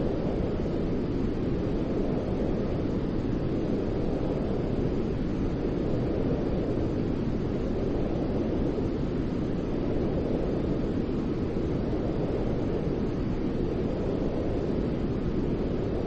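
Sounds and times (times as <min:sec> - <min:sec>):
low-pitched white noise: 0:00.0 - 0:16.0.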